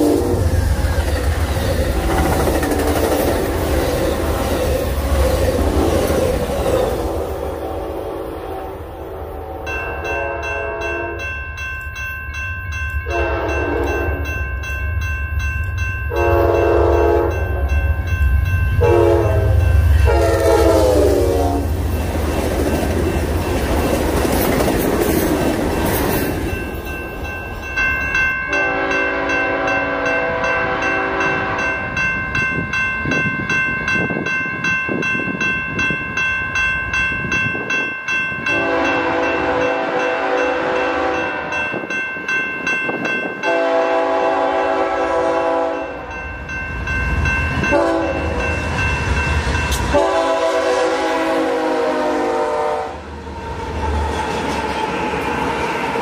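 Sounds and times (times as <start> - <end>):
train rushing past: 0.0 - 11.7, 12.6 - 56.0
wheel and rail noise: 0.0 - 45.1, 53.0 - 56.0
train horn blasts: 7.0 - 11.3, 13.0 - 14.3, 16.1 - 17.7, 18.8 - 21.8, 28.5 - 31.9, 38.5 - 41.6, 43.4 - 46.0, 47.6 - 48.5, 49.9 - 53.1.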